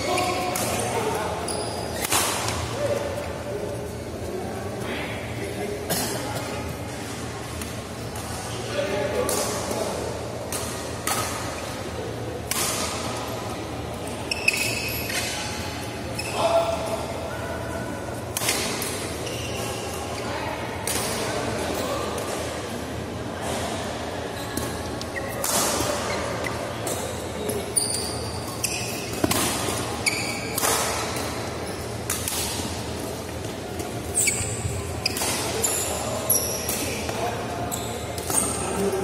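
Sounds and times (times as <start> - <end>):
shoes squeaking on court: 0.0 - 2.7, 14.0 - 16.5, 19.1 - 20.2, 24.3 - 38.9
racket hitting shuttlecock: 29.0 - 32.8.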